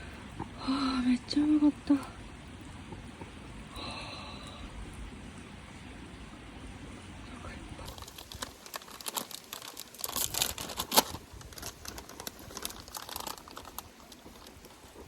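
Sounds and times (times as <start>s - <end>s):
crinkling with sharp clicks: 7.8s - 15.0s.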